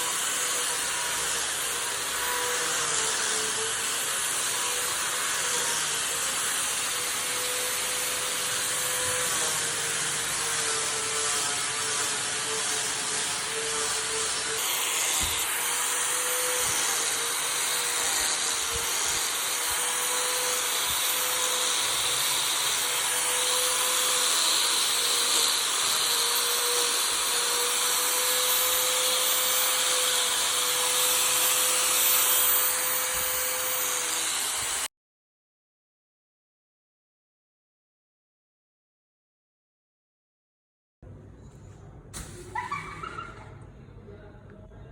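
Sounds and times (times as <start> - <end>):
power tool motor running: 0.0 - 34.9
wood grinding hiss: 0.0 - 34.9.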